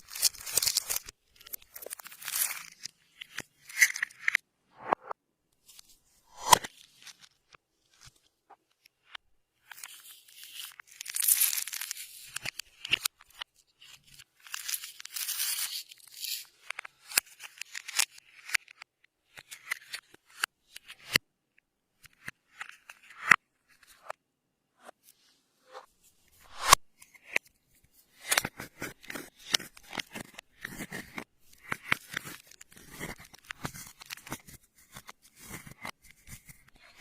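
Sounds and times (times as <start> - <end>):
slime worked by hand crackling: 0.0 - 4.0.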